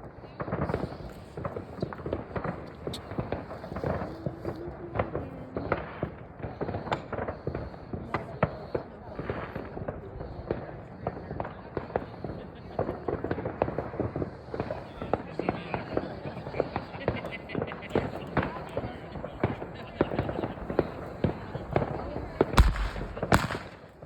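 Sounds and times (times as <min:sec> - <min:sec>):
fireworks banging and crackling: 0:00.0 - 0:24.0.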